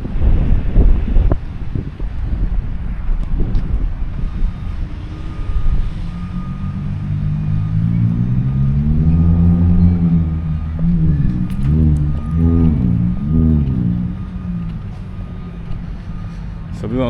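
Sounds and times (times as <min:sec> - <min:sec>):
wind rumbling on microphone: 0:00.0 - 0:16.7
vehicle engine hum: 0:00.0 - 0:17.0.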